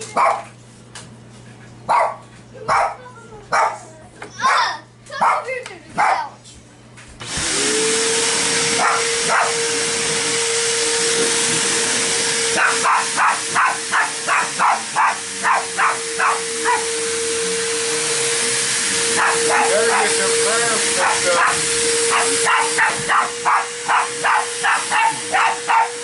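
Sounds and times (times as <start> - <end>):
dogs barking: 0.1 - 0.6, 1.8 - 6.4, 8.7 - 9.8, 12.5 - 17.0, 19.0 - 26.0
vacuum cleaner motor: 7.1 - 26.0.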